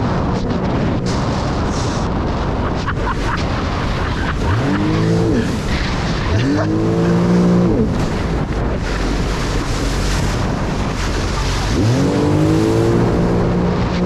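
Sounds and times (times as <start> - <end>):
jet ski engine revving: 0.0 - 14.0
rush of wind and water: 0.0 - 14.0.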